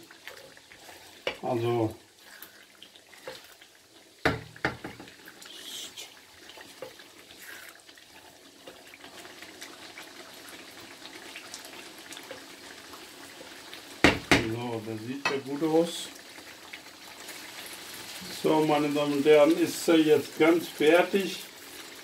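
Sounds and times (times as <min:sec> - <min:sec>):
spatula stirring and scraping: 0:00.0 - 0:13.8
sauce frying in a wok: 0:00.0 - 0:22.0.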